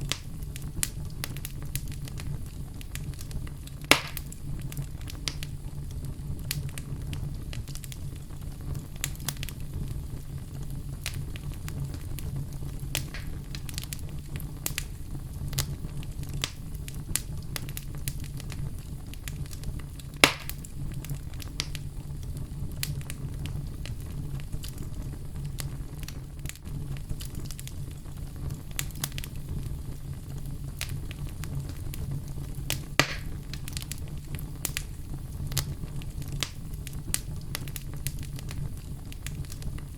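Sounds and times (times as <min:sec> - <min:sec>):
fireplace logs crackling: 0:00.0 - 0:39.9.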